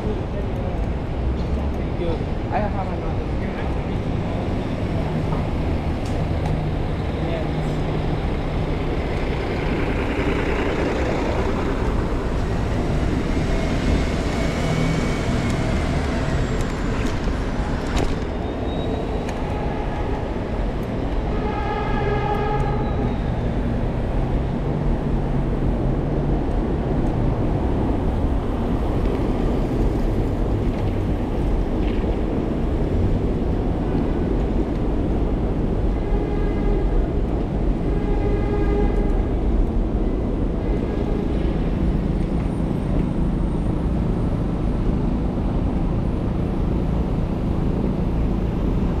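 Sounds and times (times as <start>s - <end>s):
traffic rumble: 0.0s - 49.0s.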